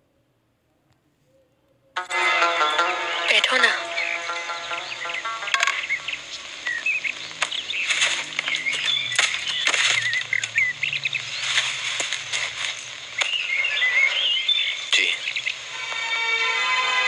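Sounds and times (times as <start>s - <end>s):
birds twittering: 2.7s - 16.4s
rustling: 5.6s - 15.6s.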